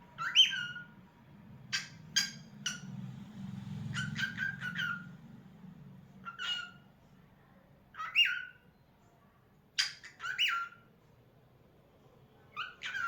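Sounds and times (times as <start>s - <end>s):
cockatiel chirps and whistles: 0.2s - 0.9s, 1.7s - 2.9s, 3.9s - 5.1s, 6.2s - 6.8s, 8.0s - 8.6s, 9.8s - 10.8s, 12.6s - 13.0s.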